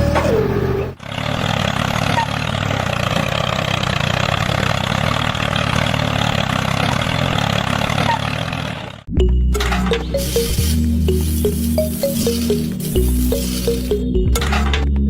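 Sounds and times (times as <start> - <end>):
tractor engine idling: 0.0 - 14.9
music: 9.1 - 15.0.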